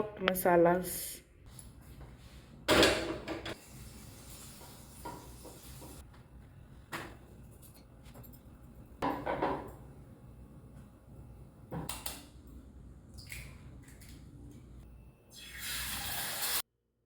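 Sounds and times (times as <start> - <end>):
kitchen items clattering: 2.7 - 3.6.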